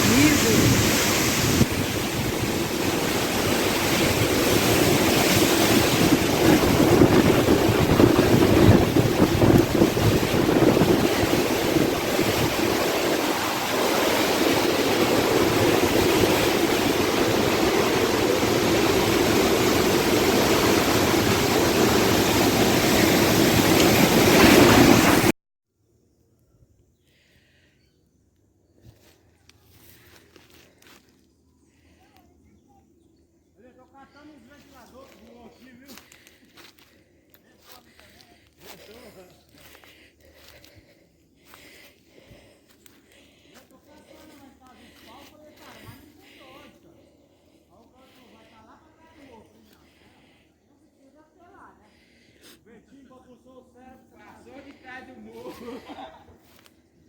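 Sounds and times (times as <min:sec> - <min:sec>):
strong wind gusts: 0:00.0 - 0:25.3
wind buffeting the microphone: 0:00.0 - 0:25.3.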